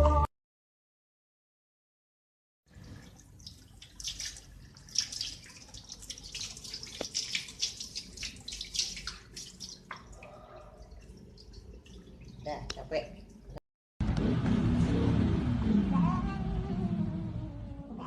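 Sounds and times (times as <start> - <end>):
water splashing and dripping: 2.7 - 13.6.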